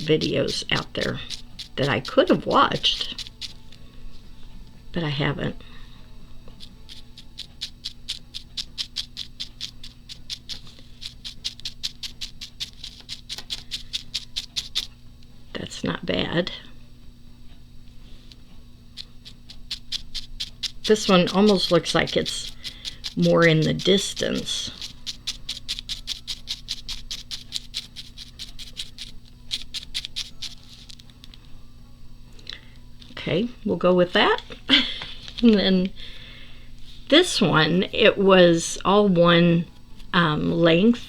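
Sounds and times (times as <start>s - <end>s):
paintbrush tapping on paper: 6.5s - 14.9s.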